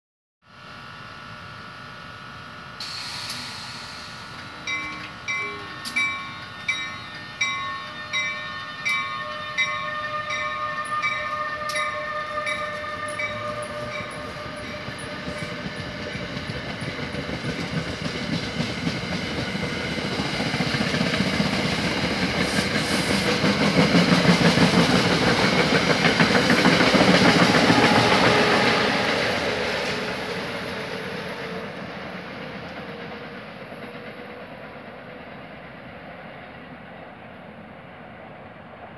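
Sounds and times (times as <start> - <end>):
electric locomotive whine: 0.5 - 38.9
train wheels on rails: 2.8 - 38.9
locomotive bell ringing: 4.5 - 17.1.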